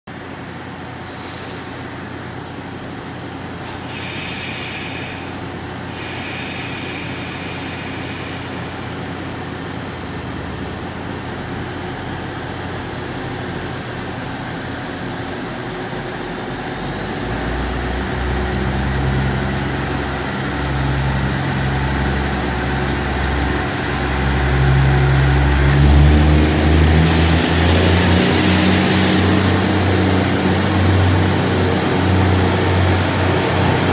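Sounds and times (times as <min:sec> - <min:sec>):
diesel train engines revving: 0:00.2 - 0:33.9
air hiss: 0:03.6 - 0:08.8
rising whine: 0:16.7 - 0:33.9.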